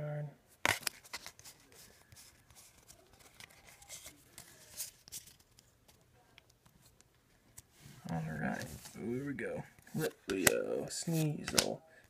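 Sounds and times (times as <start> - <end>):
trading cards being shuffled: 0.6 - 7.6, 9.8 - 11.8.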